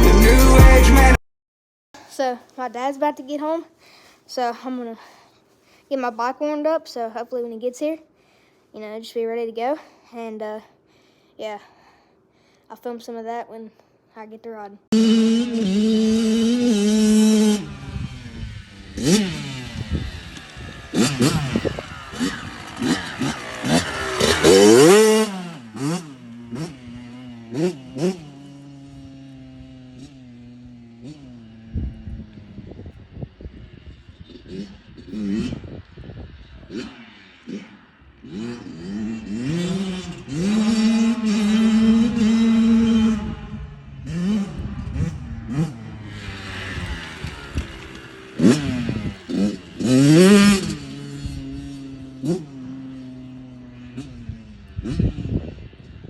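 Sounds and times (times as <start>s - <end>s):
two-stroke motocross engine revving: 14.9s - 56.0s.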